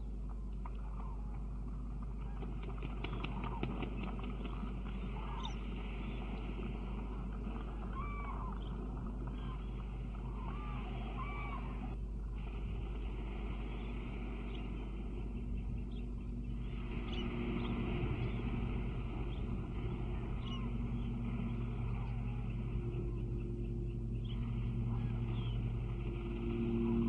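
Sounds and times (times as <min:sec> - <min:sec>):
low hum and hiss: 0:00.0 - 0:27.0
rising and falling bird calls: 0:02.3 - 0:06.4, 0:07.7 - 0:12.0, 0:13.7 - 0:18.6, 0:19.2 - 0:27.0.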